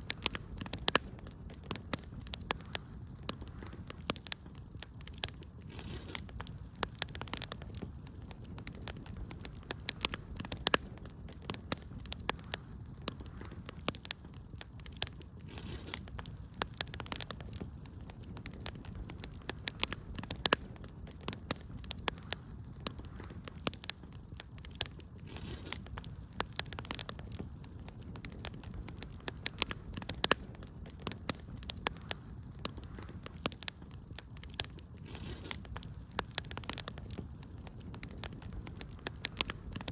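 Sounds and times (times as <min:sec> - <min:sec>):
sharp pops and snaps: 0:00.0 - 0:39.9
soft rush of burning: 0:00.0 - 0:39.9
wood fire crackling: 0:00.0 - 0:39.9.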